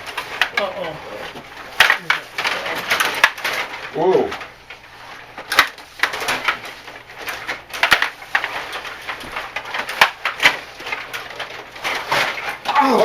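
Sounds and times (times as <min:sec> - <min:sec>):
sticks clacking on puck: 0:01.8 - 0:02.3, 0:02.9 - 0:03.6, 0:05.5 - 0:06.5, 0:07.4 - 0:12.4.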